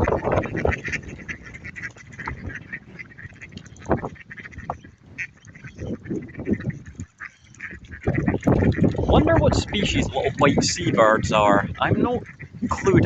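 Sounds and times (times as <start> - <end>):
ducks quacking and honking: 0.0 - 13.0.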